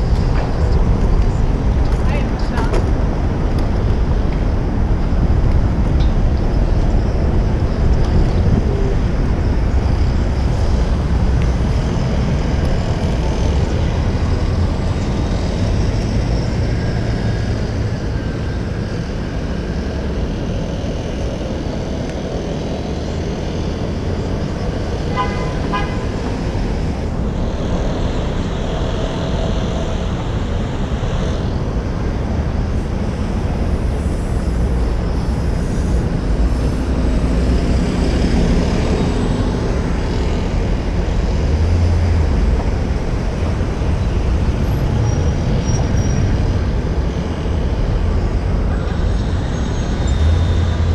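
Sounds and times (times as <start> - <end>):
city street traffic: 0.0 - 50.9
wind rumble on microphone: 0.0 - 50.9
vehicle horn toot: 25.1 - 26.2.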